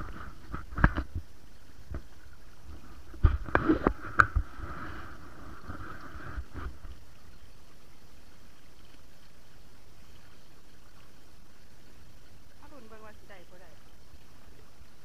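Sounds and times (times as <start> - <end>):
splashes and knocks: 0.0 - 7.1
running water: 0.0 - 15.0.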